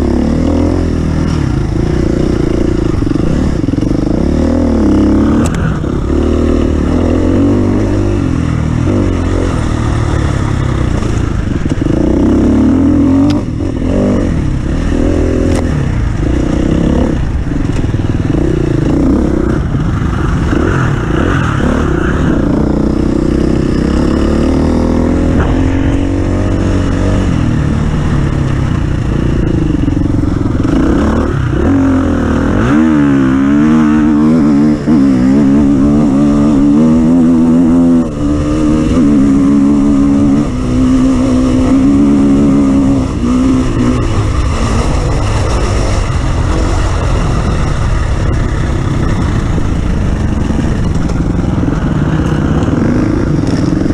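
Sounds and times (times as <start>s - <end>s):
off-road vehicle engine revving: 0.0s - 53.9s
rattling and scraping over rough ground: 43.8s - 53.9s.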